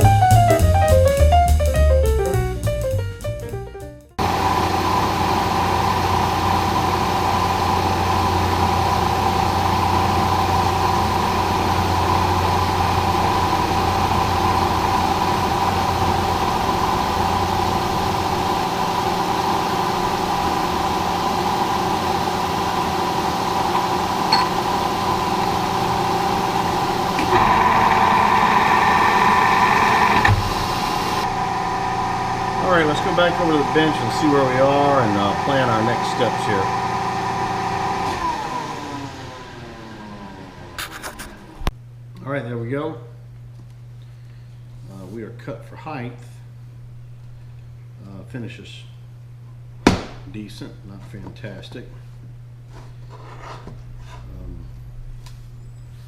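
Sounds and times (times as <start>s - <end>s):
milling machine cutting steel: 4.2s - 39.4s.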